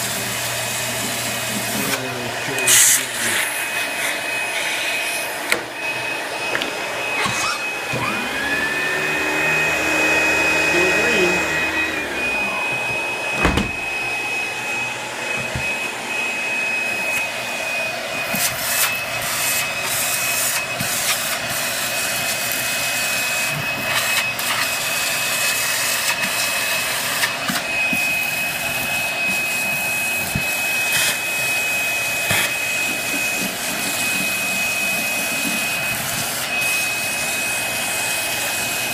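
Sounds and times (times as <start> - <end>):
vacuum cleaner running on carpet: 0.0 - 38.9
high-pitched tone: 5.8 - 18.2.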